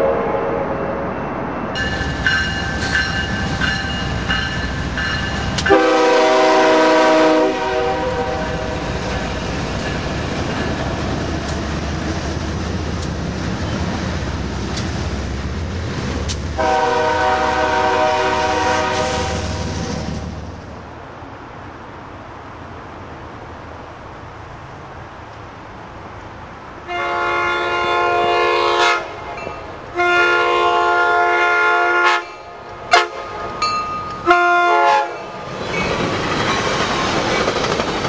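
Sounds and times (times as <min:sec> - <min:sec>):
locomotive horn blasts: 0:00.0 - 0:00.8, 0:05.5 - 0:08.8, 0:16.6 - 0:19.6, 0:26.9 - 0:35.4
passenger locomotive horn: 0:00.0 - 0:01.0, 0:05.4 - 0:09.0, 0:16.5 - 0:20.2, 0:26.8 - 0:35.4
diesel locomotives rumbling: 0:00.0 - 0:38.0
locomotive bell ringing: 0:01.7 - 0:05.8, 0:09.0 - 0:10.9, 0:29.3 - 0:29.8, 0:33.5 - 0:34.3, 0:35.1 - 0:37.5.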